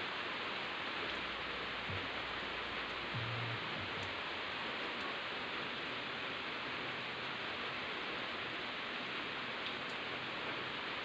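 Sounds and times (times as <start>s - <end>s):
rain falling on leaves: 0.0s - 11.0s.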